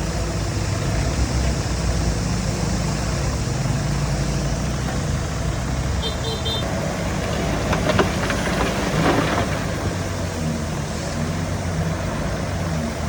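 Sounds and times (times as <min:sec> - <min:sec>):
diesel engine running: 0:00.0 - 0:13.0
rattles and clanks: 0:06.6 - 0:11.6.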